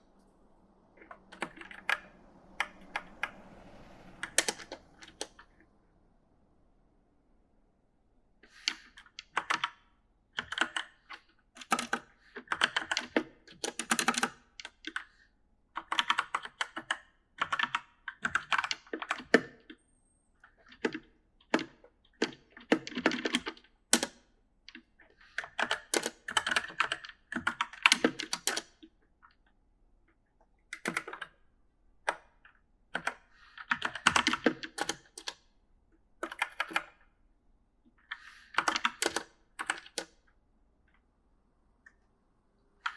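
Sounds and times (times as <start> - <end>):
mechanical keyboard typing: 1.0 - 3.3, 4.2 - 5.4, 8.5 - 15.1, 15.8 - 19.8, 20.5 - 28.9, 30.7 - 31.4, 32.0 - 35.4, 36.2 - 37.0, 38.1 - 40.2.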